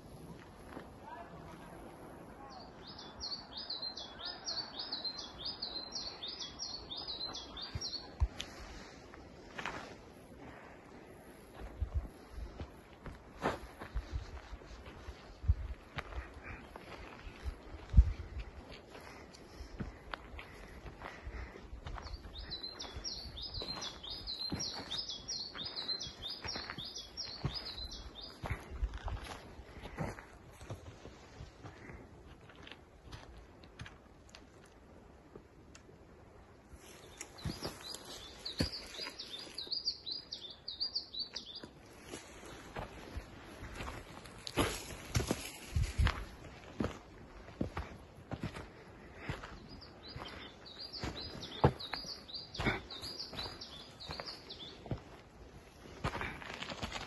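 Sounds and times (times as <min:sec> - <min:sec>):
footsteps on dirt trail: 0:00.1 - 0:01.7, 0:04.8 - 0:34.7, 0:36.8 - 0:57.0
songbird singing: 0:02.2 - 0:09.2, 0:15.3 - 0:29.9, 0:36.5 - 0:56.2.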